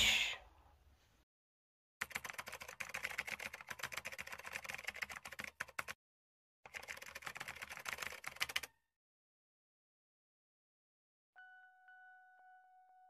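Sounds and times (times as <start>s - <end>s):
rapid keyboard typing: 2.0s - 6.0s, 6.7s - 8.7s.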